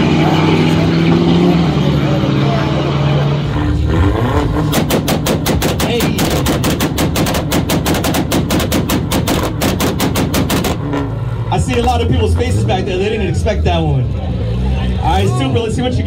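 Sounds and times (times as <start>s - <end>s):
car engine on rev limiter: 0.0s - 7.6s, 9.2s - 16.0s
exhaust popping and banging: 4.2s - 12.3s.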